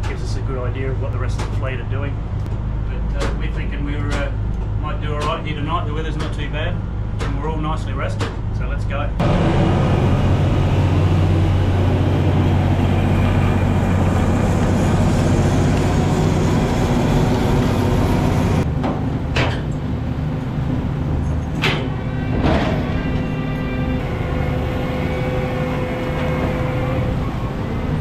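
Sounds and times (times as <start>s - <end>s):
boat engine droning: 9.1s - 28.0s.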